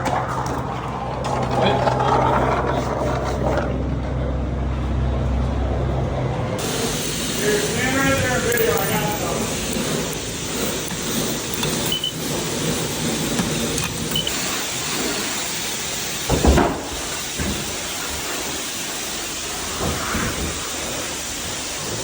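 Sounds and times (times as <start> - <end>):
spray wand hissing: 6.6 - 22.0.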